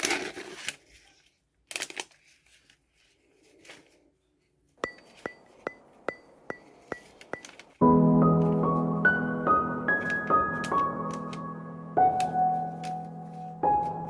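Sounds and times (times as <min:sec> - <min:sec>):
sharp ringing ticks: 0:04.8 - 0:07.6.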